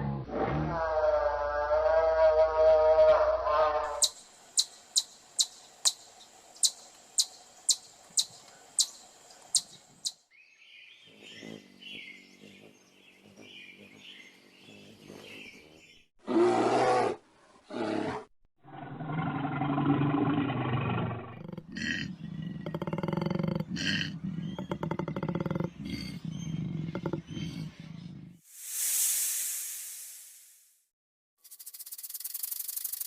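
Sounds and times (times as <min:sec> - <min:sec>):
animal roars: 0:00.0 - 0:04.0, 0:16.2 - 0:28.4
animal clicking chirps: 0:04.0 - 0:10.2, 0:24.4 - 0:27.6.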